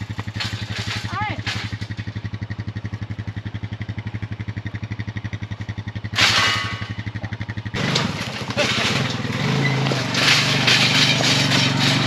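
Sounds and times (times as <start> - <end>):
engine running: 0.0 - 12.0
loud scraping with squeal: 6.2 - 7.1, 7.8 - 12.0.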